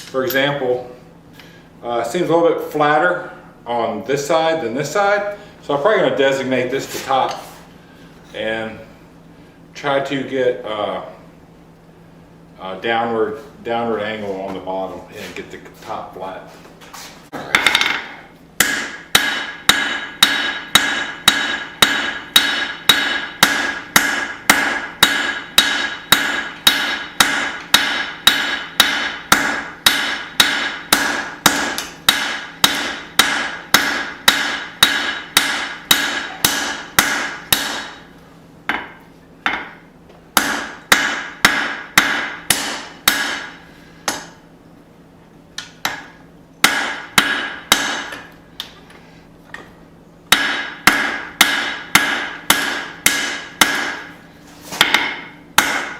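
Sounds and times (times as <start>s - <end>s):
hammer striking steel on anvil: 17.5s - 38.0s, 40.4s - 44.4s, 45.6s - 48.3s, 50.3s - 54.1s, 54.8s - 55.9s.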